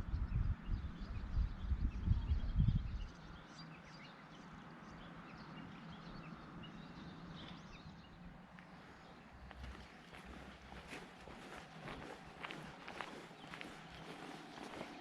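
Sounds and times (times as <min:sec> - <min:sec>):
low rumbling on microphone: 0:00.0 - 0:03.4
small birds chirping: 0:00.0 - 0:15.0.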